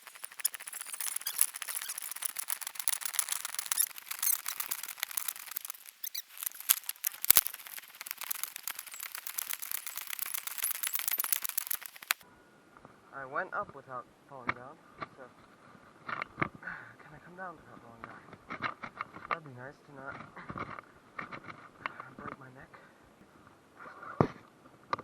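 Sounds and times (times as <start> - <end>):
scrapes and clicks on rocks: 0.0 - 12.2.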